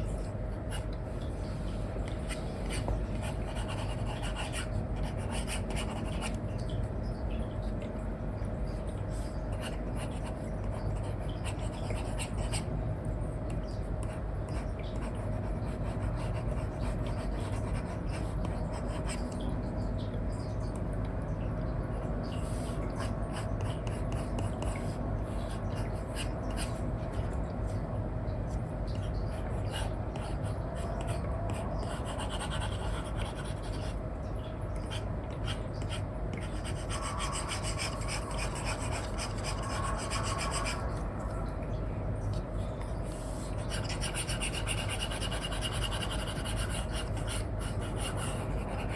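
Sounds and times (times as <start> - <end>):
low background noise: 0.0 - 48.9
stylus scratching on screen: 2.1 - 6.4, 29.1 - 34.0, 34.9 - 41.0, 43.1 - 48.9.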